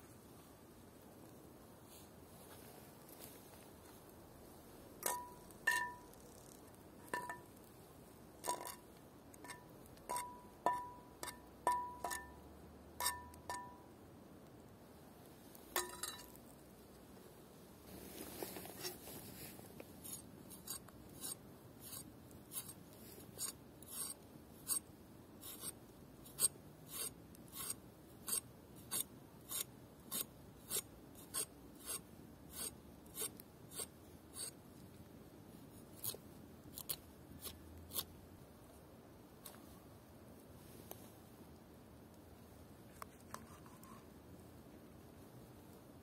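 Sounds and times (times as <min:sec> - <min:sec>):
faint scraping strokes: 0:17.8 - 0:24.8, 0:42.9 - 0:44.1.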